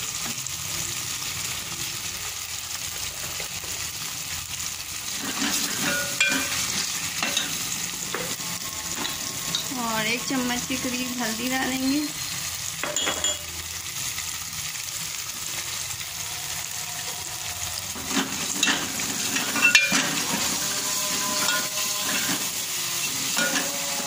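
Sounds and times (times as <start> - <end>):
sauce sizzling in oil: 0.0 - 24.0
ladle scraping a pot: 5.1 - 9.7, 16.9 - 24.0.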